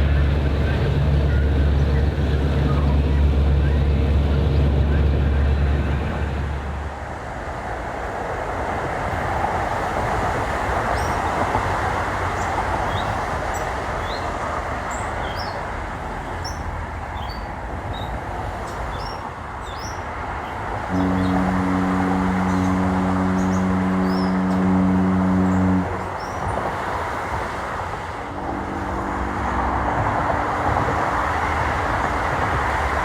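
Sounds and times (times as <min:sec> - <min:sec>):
engine hum: 0:00.0 - 0:07.0, 0:20.8 - 0:33.0
rumbling outdoor noise: 0:00.0 - 0:33.0.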